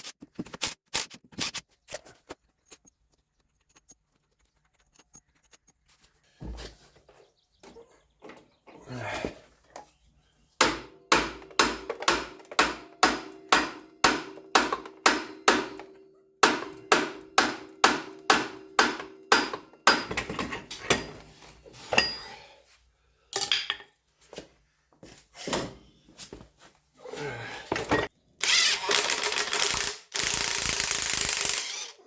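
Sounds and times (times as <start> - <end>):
hammer striking metal: 10.6 - 21.2.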